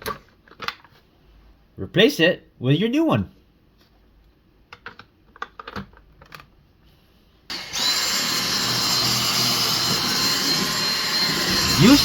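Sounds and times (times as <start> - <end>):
vacuum cleaner whining: 7.5 - 12.0.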